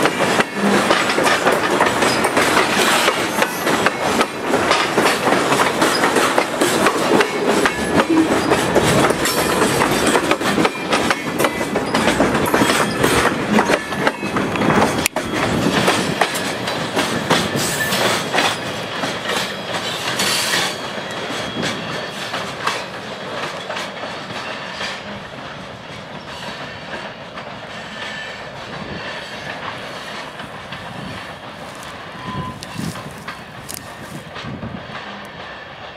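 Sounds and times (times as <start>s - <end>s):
train wheels clacking over rail joints: 0.0s - 35.9s
thin wheel squeals: 32.1s - 32.9s.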